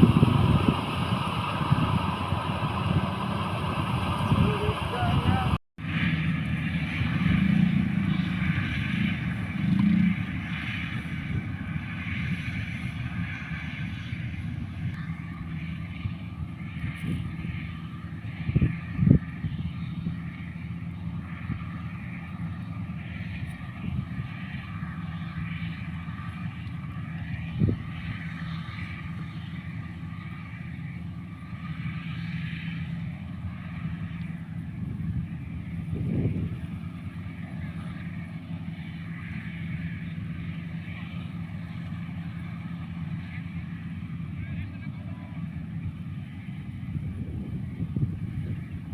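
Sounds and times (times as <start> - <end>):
engine running: 0.0 - 48.9.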